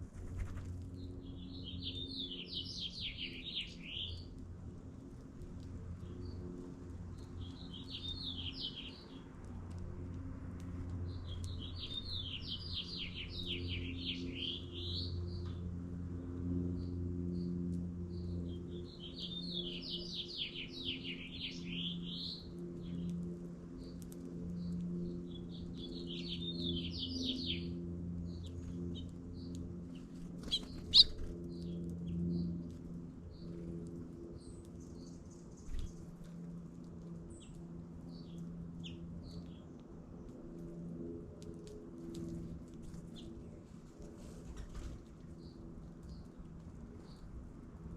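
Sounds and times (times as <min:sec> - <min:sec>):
low hum: 0:00.0 - 0:47.9
songbird warbling: 0:30.5 - 0:31.2.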